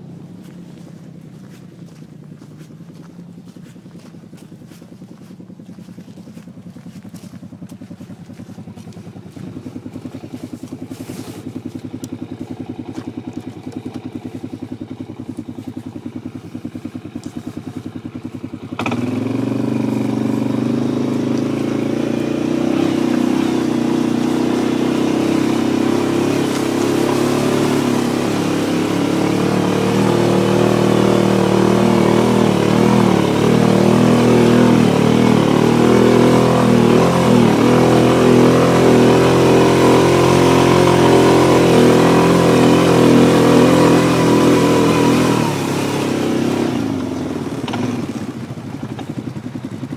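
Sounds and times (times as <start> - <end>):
atv engine running: 0.0 - 49.9.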